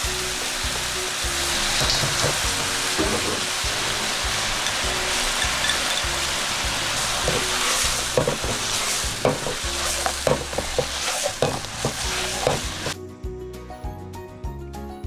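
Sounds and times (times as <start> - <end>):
meat sizzling in a pan: 0.0 - 13.0
faint background music: 0.0 - 15.0
metal spatula knocking pan: 1.8 - 3.5, 7.2 - 13.0.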